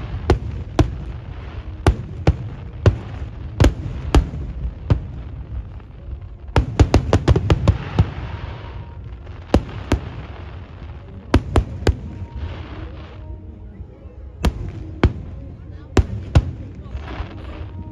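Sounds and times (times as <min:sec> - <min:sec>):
fireworks bangs: 0:00.0 - 0:13.2
fireworks crackling: 0:00.0 - 0:17.9.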